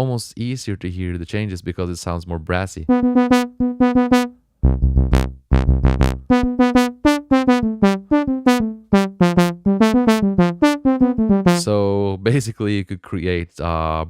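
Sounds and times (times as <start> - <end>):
brassy synth notes: 2.9 - 11.7.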